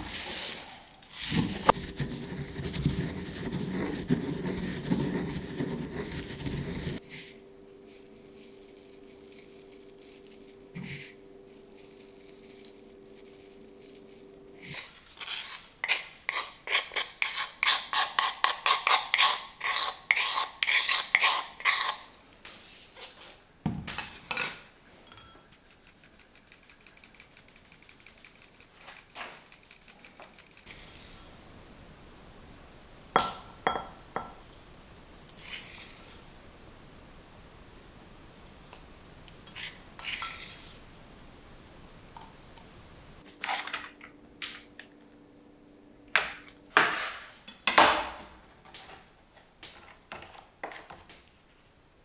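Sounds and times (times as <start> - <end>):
utensil scraping dishes: 14.6 - 22.1
utensil clinking on dishes: 25.0 - 25.6, 33.2 - 34.4, 43.4 - 45.2.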